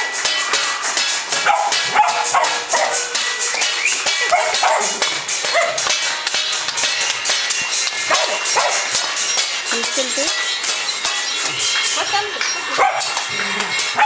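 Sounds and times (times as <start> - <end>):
people clapping and banging: 0.0 - 14.0
dog barking: 1.4 - 3.1, 4.2 - 5.9, 8.1 - 9.0, 12.8 - 13.2.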